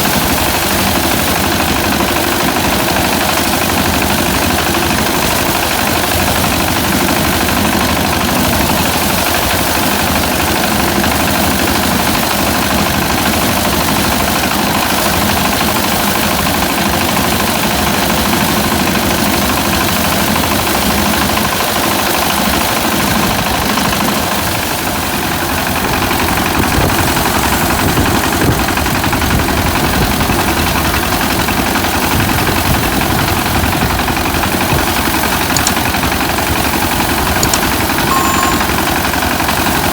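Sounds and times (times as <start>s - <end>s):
harvester engine running: 19.2s - 39.9s.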